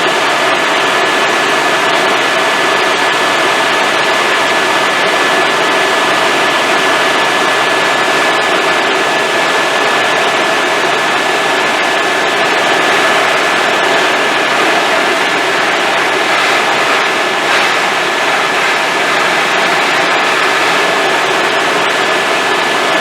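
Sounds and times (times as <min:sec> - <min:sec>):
helicopter engine and rotor noise: 0:00.0 - 0:23.0
high whine: 0:10.8 - 0:23.0.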